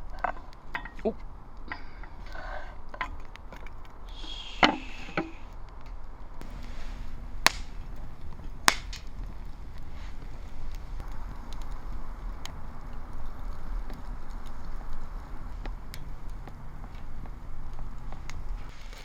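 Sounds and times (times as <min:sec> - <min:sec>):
short hiss: 0:04.1 - 0:05.5
chopping strikes on wood: 0:07.5 - 0:07.7, 0:08.7 - 0:09.1.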